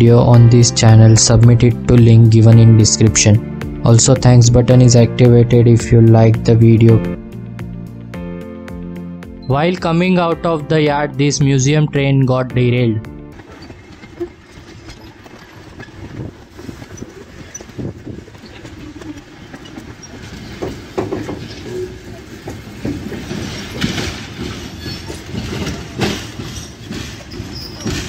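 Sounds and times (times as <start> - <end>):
train wheels clattering over joints: 13.3 - 28.0.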